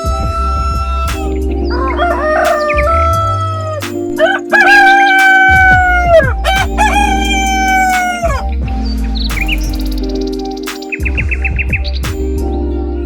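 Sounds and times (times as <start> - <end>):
background music: 0.0 - 13.0
rooster crowing: 1.7 - 8.4.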